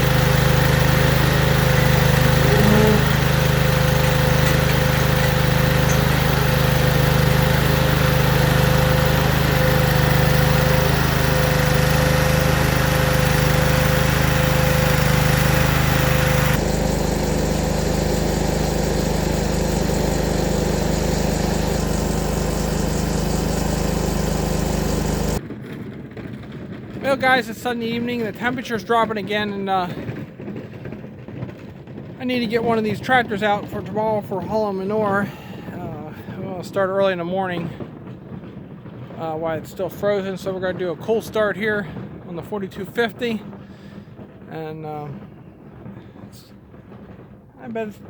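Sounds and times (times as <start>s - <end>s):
tractor diesel engine running: 0.0s - 25.4s.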